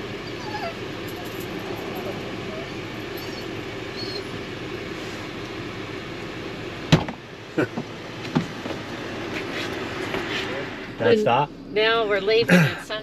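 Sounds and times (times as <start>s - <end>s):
steady hum: 0.0s - 13.0s
door shutting thump: 6.9s - 7.2s.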